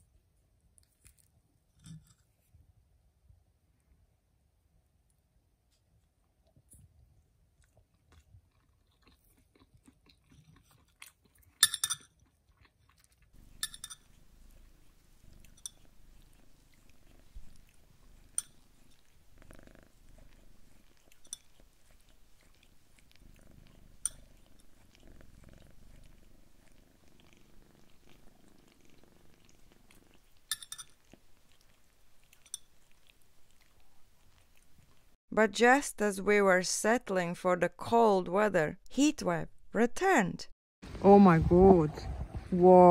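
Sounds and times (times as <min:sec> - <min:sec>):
kitten licking and chewing fur: 0:00.0 - 0:02.8, 0:04.8 - 0:35.2
low steady purr: 0:13.4 - 0:35.2.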